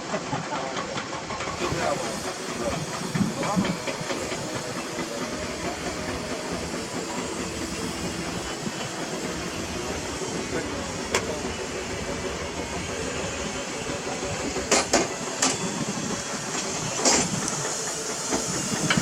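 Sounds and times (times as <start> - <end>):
heavy diesel machinery running: 0.0 - 19.0.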